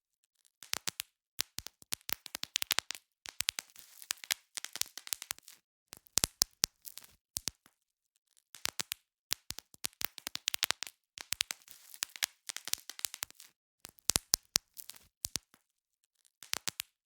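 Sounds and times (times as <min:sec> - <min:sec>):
bubble wrap popping: 0:00.6 - 0:07.7, 0:08.6 - 0:15.6, 0:16.4 - 0:17.0
plastic crinkling: 0:02.6 - 0:05.6, 0:10.4 - 0:13.5.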